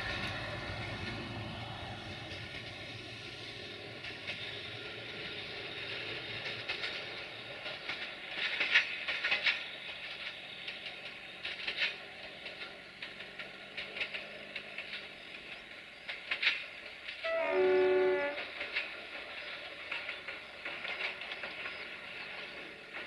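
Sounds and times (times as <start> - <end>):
train rumble: 0.0 - 23.0
train wheels clicking over joints: 0.0 - 23.0
locomotive horn: 17.2 - 18.8.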